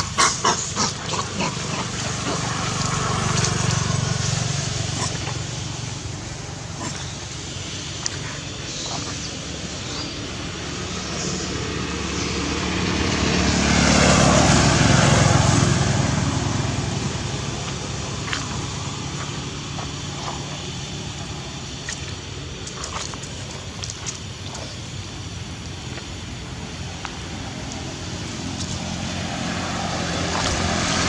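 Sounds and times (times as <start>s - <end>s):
vehicle passing by: 0.0s - 31.0s.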